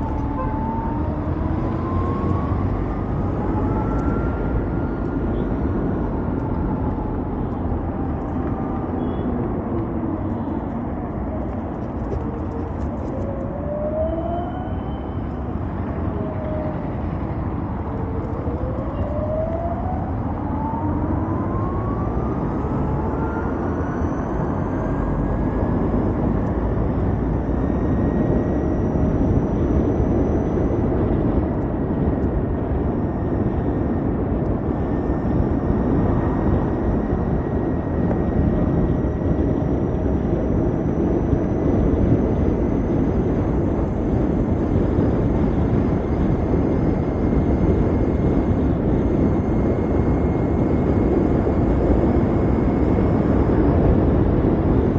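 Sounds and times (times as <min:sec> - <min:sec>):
electric scooter motor whine: 0:00.0 - 0:54.9
wind and road noise: 0:00.0 - 0:54.9.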